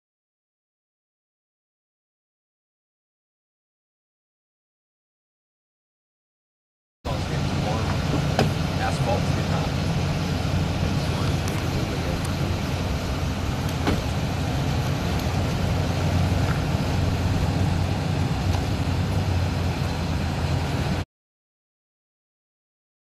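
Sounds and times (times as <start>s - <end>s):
vehicle engine idling: 7.1s - 21.0s.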